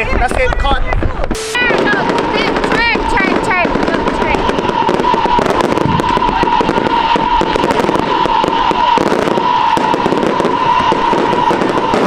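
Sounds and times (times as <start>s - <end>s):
fireworks crackling and popping: 0.0s - 12.0s
steady high tone: 1.3s - 4.4s.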